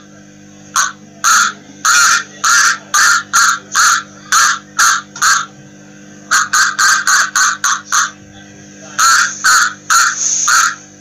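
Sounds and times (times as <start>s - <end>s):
duck quacking: 0.8s - 5.5s, 6.3s - 8.2s, 9.0s - 10.9s.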